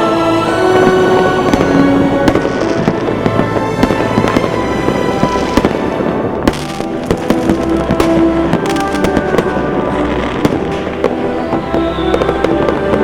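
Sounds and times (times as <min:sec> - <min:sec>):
fireworks exploding: 0:00.0 - 0:13.0
music with sustained tones: 0:00.0 - 0:13.0.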